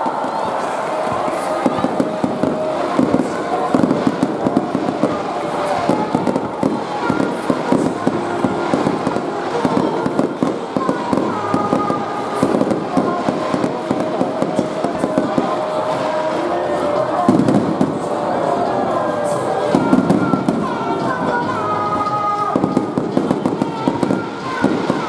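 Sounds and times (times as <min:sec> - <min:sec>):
crowd voices: 0:00.0 - 0:25.0
music: 0:00.0 - 0:25.0.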